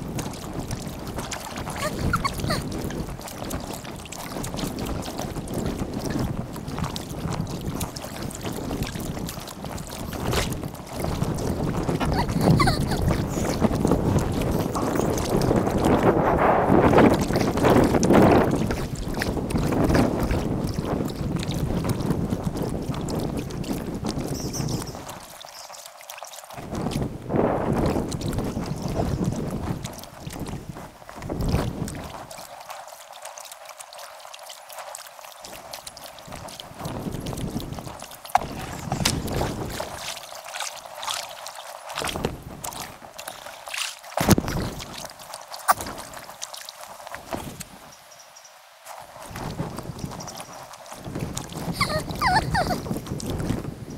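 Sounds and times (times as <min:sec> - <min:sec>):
wind buffeting microphone: 0:00.0 - 0:25.3, 0:26.5 - 0:32.5, 0:36.2 - 0:40.2, 0:42.0 - 0:43.1, 0:44.2 - 0:45.1, 0:49.0 - 0:53.9
kayak paddling splashes: 0:00.0 - 0:53.9.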